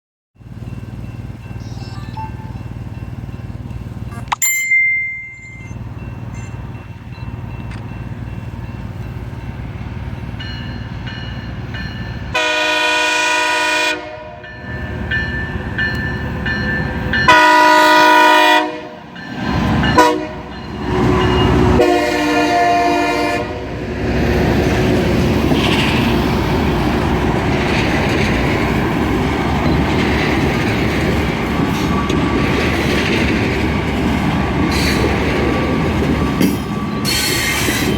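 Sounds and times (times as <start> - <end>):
train passing rumble: 0.4 - 37.9
train air horn: 12.3 - 14.4, 17.3 - 19.1, 19.9 - 23.8.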